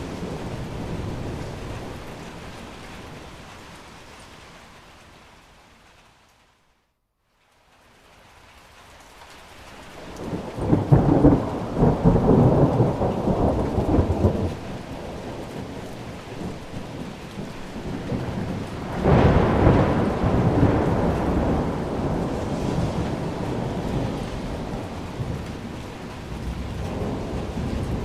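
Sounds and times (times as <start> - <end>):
thunder rolling: 0.0 - 3.3, 10.0 - 28.0
steady rain: 0.0 - 28.0.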